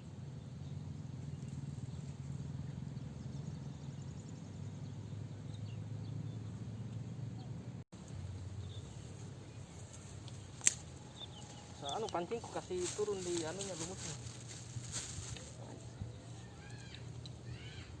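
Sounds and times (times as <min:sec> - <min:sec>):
faint insect calls: 0:00.0 - 0:18.0
steady low rumble: 0:00.0 - 0:18.0
bird calls: 0:08.5 - 0:14.7, 0:15.6 - 0:18.0.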